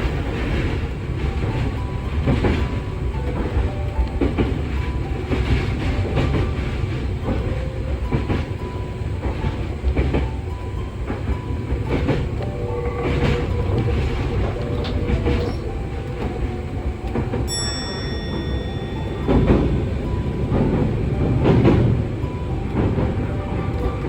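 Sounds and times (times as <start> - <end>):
electric train rumbling: 0.0 - 24.0
wheels clacking over rail joints: 0.0 - 24.0
squeals from running gear: 13.1 - 15.7.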